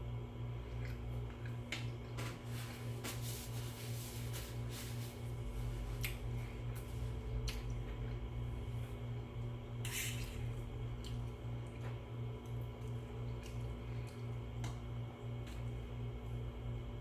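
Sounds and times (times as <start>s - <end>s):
person chewing: 0.6s - 2.2s, 5.9s - 8.3s, 9.9s - 14.8s.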